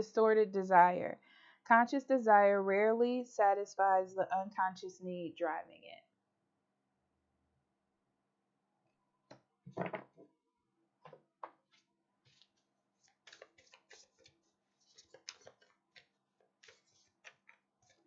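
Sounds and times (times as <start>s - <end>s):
cards being shuffled: 11.7s - 18.0s.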